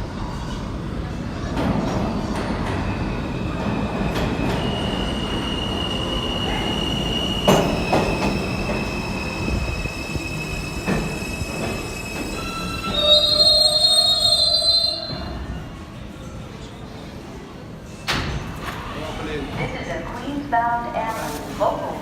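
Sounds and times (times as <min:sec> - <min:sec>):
subway train rumbling: 0:00.0 - 0:22.0
train wheels squealing: 0:03.5 - 0:15.6.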